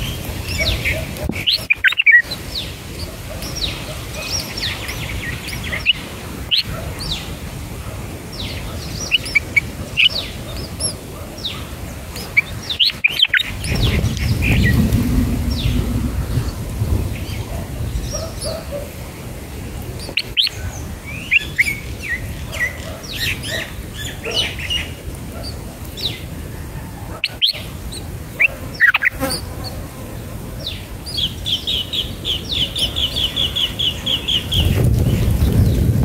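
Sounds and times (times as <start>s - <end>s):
bird chirps: 0.0s - 2.7s, 3.4s - 7.3s, 8.4s - 11.6s, 12.2s - 14.8s, 27.2s - 29.4s
low rumble: 13.7s - 18.0s.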